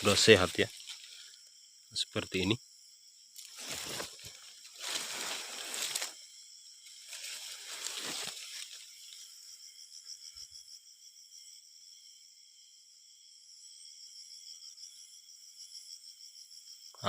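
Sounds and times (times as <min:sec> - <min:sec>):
rustling leaves and brush: 0:00.0 - 0:01.4, 0:03.4 - 0:09.5
high insect trill: 0:00.0 - 0:17.0.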